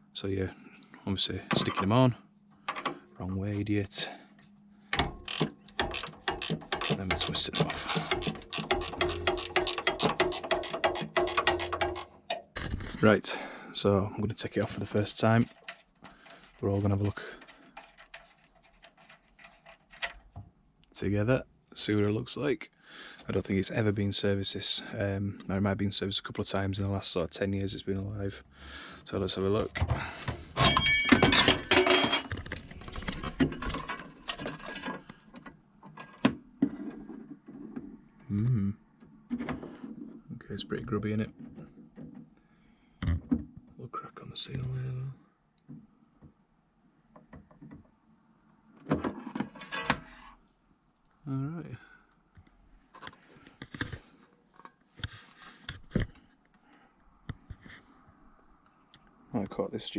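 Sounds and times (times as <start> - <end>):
tools clicking and knocking: 2.7 - 3.0, 4.9 - 12.6, 15.4 - 20.5, 30.3 - 37.0
metal parts clattering and clinking: 5.0 - 12.5, 30.5 - 35.1, 35.9 - 36.2, 49.4 - 50.0.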